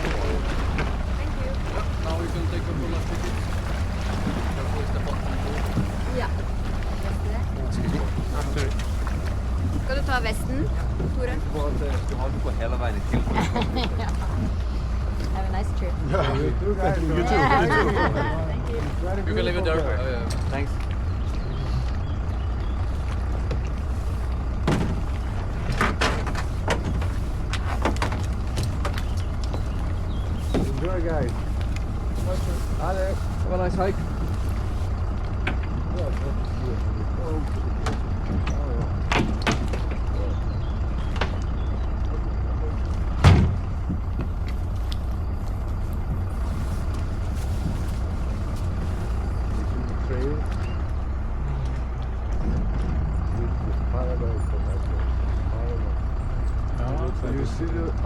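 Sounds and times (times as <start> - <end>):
boat engine idling: 0.0 - 58.0
knocks and clatters: 22.6 - 31.9
loud thump: 43.2 - 44.3.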